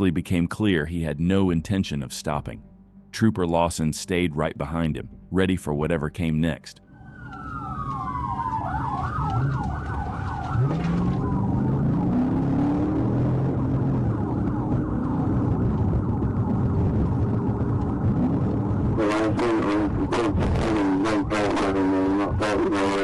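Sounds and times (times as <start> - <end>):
police siren wailing and yelping: 7.0 - 17.6
car engine running hard: 8.9 - 23.0.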